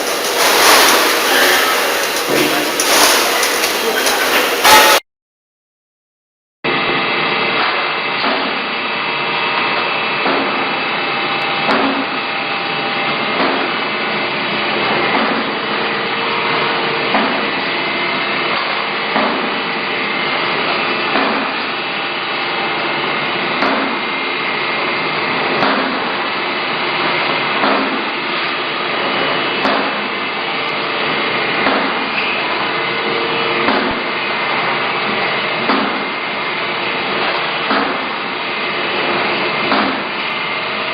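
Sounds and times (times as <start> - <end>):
machine knocking: 0.0 - 5.0, 27.0 - 28.2, 31.0 - 36.3, 37.0 - 38.3, 38.9 - 40.3
machinery humming: 0.0 - 5.0, 6.7 - 40.9.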